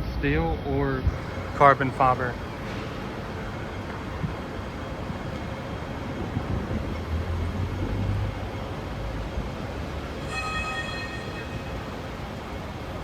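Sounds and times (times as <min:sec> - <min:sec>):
vehicle traffic noise: 0:00.0 - 0:13.0
high-pitched tone: 0:10.2 - 0:12.2.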